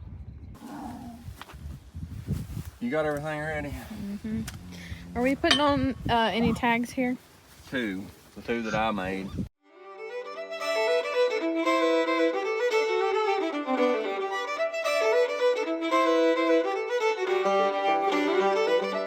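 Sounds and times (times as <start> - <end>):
fiddle tune: 9.6 - 19.0.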